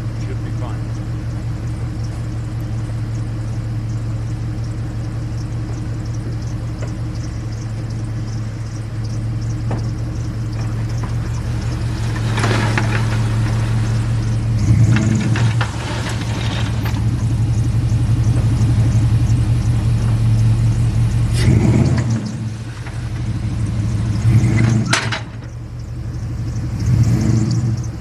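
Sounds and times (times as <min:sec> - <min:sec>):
truck engine running at low revs: 0:00.0 - 0:28.0
knocks and rattles: 0:05.0 - 0:26.7
loud clunk: 0:24.5 - 0:25.6.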